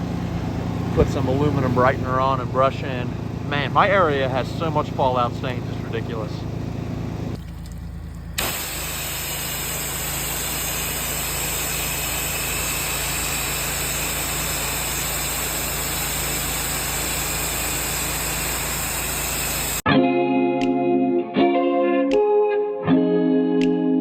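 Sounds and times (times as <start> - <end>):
engine humming: 0.0 - 19.8
water spray hissing: 8.4 - 19.8.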